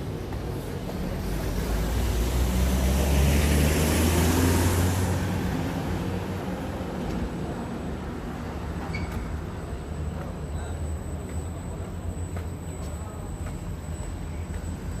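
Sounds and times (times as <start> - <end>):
vehicle passing by: 1.1 - 7.4.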